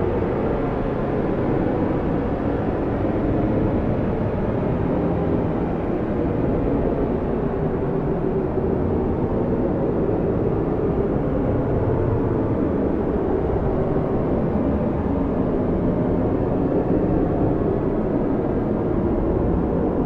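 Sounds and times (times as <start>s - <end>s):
strong blizzard wind: 0.0s - 20.0s.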